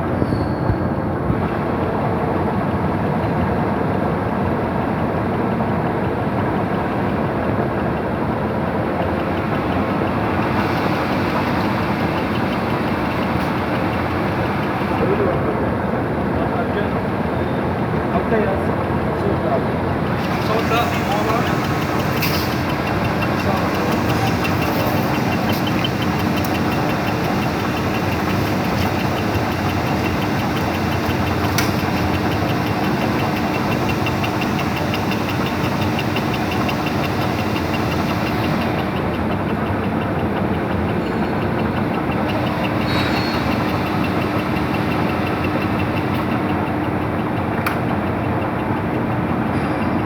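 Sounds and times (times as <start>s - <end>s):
machinery running loudly: 1.0s - 50.0s
constant hum: 5.2s - 50.0s
fine rapid ticking: 7.6s - 15.2s, 19.8s - 49.5s.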